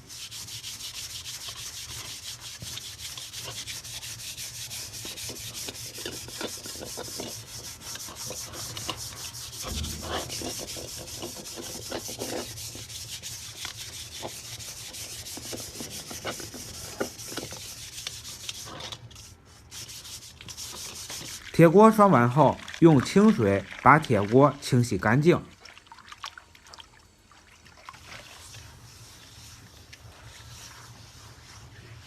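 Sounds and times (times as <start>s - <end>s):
scratchy scrubbing of a wok: 0.0s - 26.1s, 27.4s - 32.0s.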